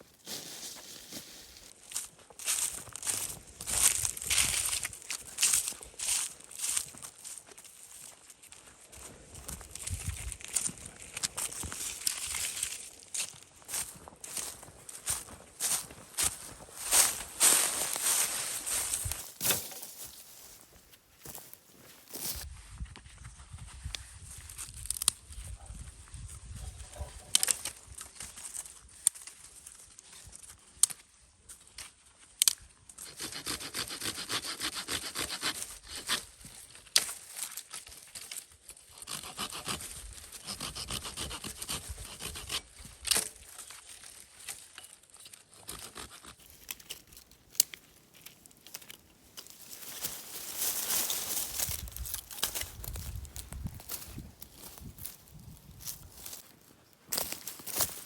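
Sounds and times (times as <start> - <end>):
saw cutting wood: 33.0 - 36.2, 39.0 - 42.7, 45.6 - 46.5.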